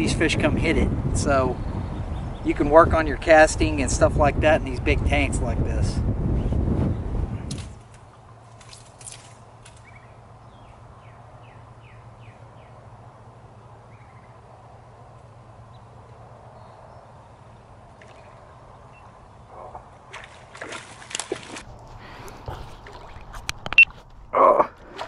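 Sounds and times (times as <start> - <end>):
fish splash on water: 20.1 - 21.7.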